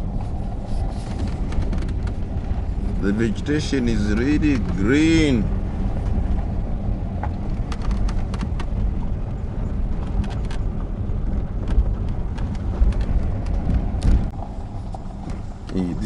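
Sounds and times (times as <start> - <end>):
vehicle rumbling on rough track: 0.0 - 16.0
clicks and rattles: 0.9 - 5.2, 7.2 - 8.9, 9.8 - 15.9.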